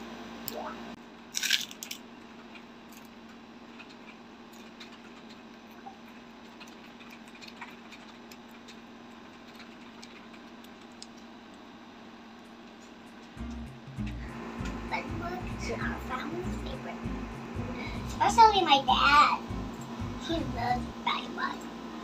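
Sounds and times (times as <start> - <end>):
child chewing food: 2.3 - 11.6
low hum: 12.4 - 22.0.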